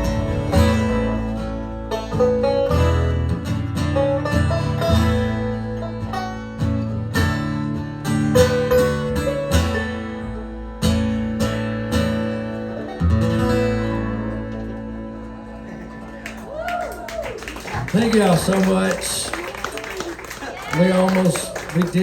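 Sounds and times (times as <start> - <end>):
strummed acoustic guitar chords: 0.0 - 16.5.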